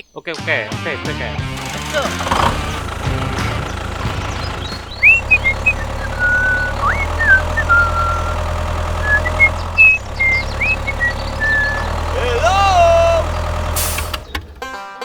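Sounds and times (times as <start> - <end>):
low motor-like hum: 1.6 - 14.6
short whistled chirps: 5.0 - 12.0.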